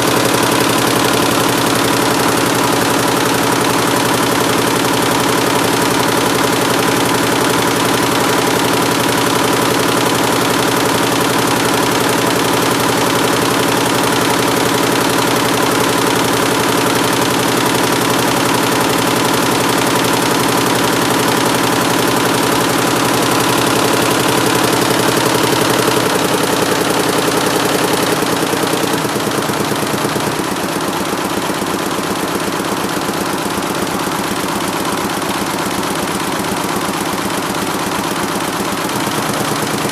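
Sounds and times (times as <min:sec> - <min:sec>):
embroidery machine clattering: 0:00.0 - 0:39.9.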